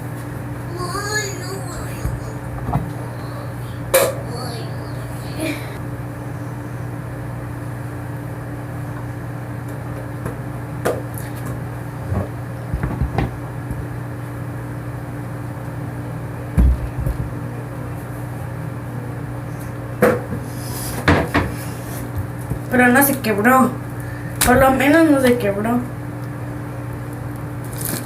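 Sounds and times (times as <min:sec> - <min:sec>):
steady low hum: 0:00.0 - 0:28.0
low thump: 0:16.6 - 0:17.2.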